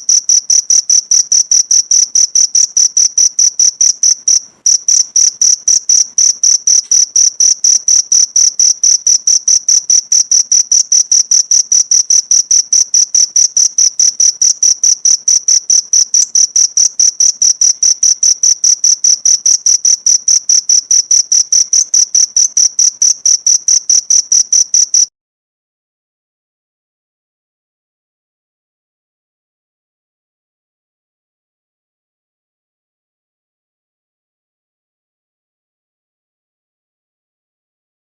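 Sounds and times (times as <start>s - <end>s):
cricket chirping: 0.0s - 25.1s.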